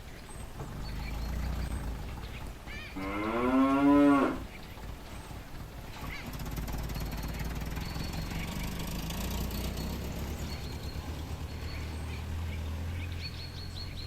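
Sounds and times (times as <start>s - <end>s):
low steady rumble: 0.0s - 14.0s
cow mooing: 2.8s - 4.6s.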